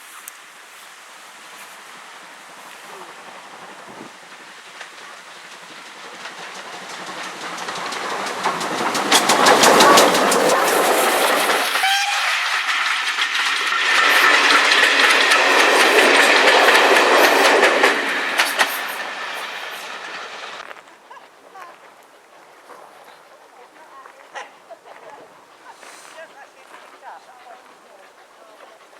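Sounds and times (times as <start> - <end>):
train wheels clattering: 1.4 - 20.9
train wheel squeal: 4.7 - 20.6.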